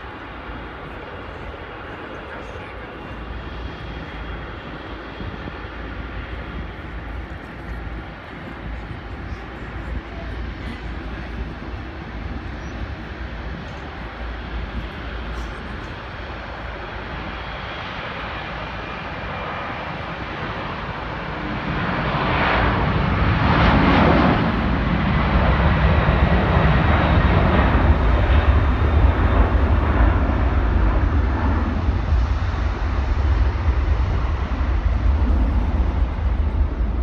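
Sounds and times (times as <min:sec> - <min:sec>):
jet engines roaring: 0:00.0 - 0:37.0.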